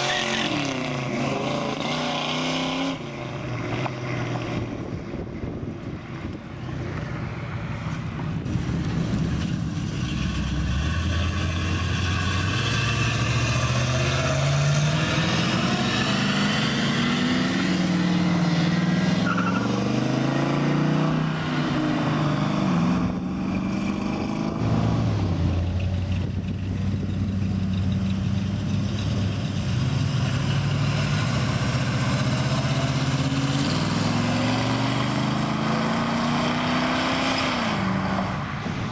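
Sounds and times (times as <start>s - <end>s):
cars driving past: 0.0s - 38.9s.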